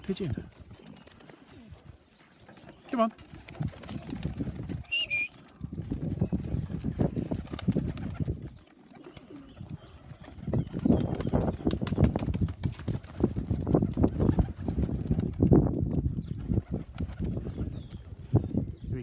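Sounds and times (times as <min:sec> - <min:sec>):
pigeons cooing: 0:00.6 - 0:12.1.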